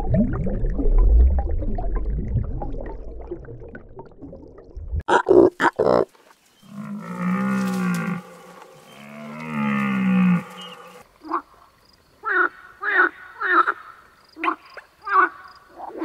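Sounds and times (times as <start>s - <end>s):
long drawn-out animal calls: 6.6s - 11.5s, 12.2s - 15.5s.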